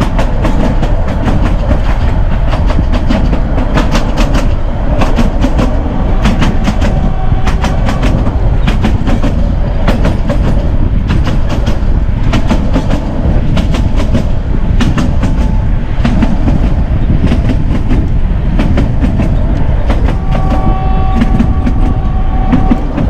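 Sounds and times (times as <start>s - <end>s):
train carriage rumble: 0.0s - 23.0s
train wheels clacking over rail joints: 0.0s - 23.0s.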